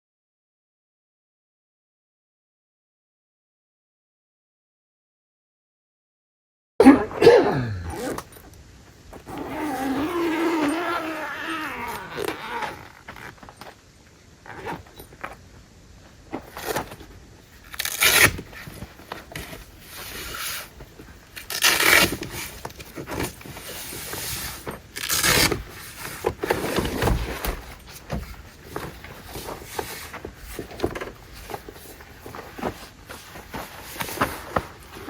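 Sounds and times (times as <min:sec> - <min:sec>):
scrapes and rustles: 0:07.9 - 0:35.0.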